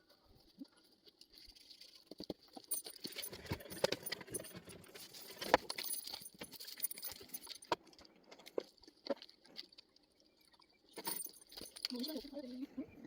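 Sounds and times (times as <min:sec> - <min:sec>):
metal chain clinking and rattling: 0:01.1 - 0:09.3, 0:10.9 - 0:12.7.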